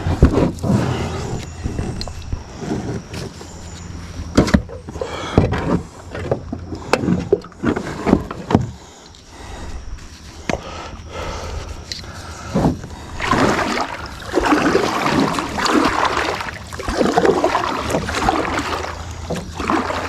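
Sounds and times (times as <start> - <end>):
paddle knocking and splashing: 12.5 - 20.0.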